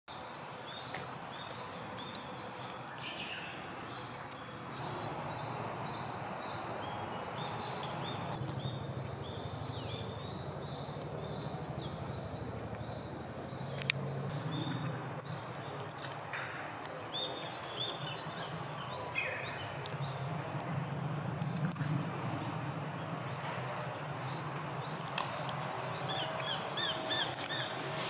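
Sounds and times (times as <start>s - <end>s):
small birds calling: 0.2s - 20.5s, 23.0s - 28.0s
low background rumble: 3.4s - 15.8s.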